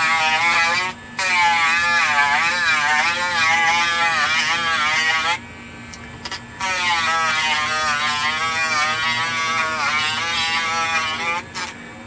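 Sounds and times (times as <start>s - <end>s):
rotary tool grinding plastic: 0.0s - 5.4s, 6.2s - 11.8s.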